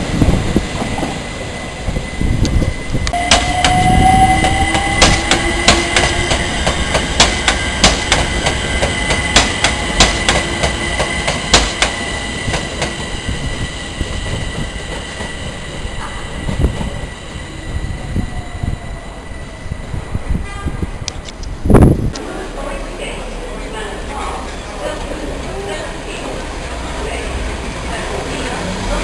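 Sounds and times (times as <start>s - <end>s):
high wheel squeal: 1.2s - 20.3s
train wheels clicking over rail joints: 1.9s - 17.1s.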